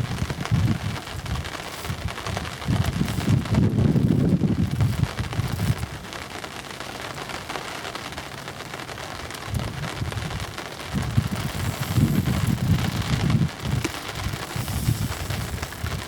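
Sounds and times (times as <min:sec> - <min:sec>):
wind buffeting microphone: 0:00.0 - 0:06.1, 0:09.4 - 0:16.0
steady hiss: 0:00.0 - 0:16.0.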